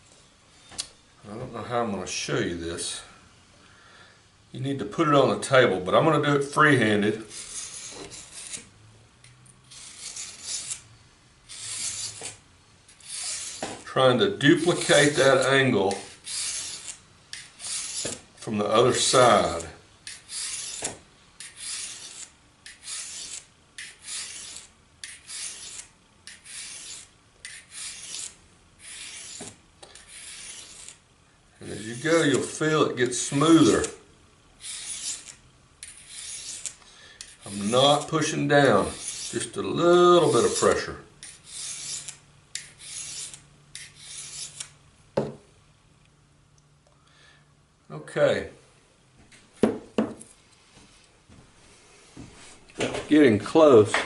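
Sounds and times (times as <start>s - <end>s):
hand file scraping blade edge: 7.2s - 8.7s, 9.6s - 13.9s, 14.5s - 31.0s, 31.6s - 34.0s, 34.6s - 39.6s, 40.2s - 44.8s.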